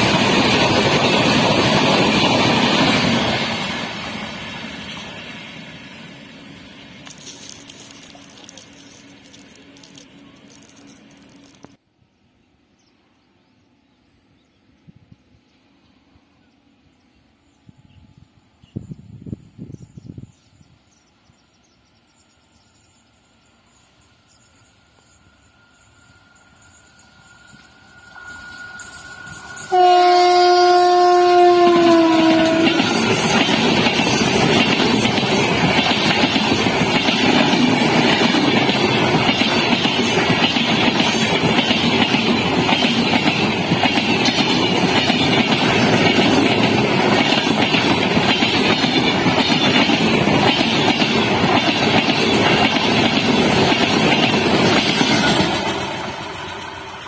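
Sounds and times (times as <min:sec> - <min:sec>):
train wheels clattering on rails: 0:00.0 - 0:05.8, 0:31.4 - 0:57.0
train horn blast: 0:29.6 - 0:33.3.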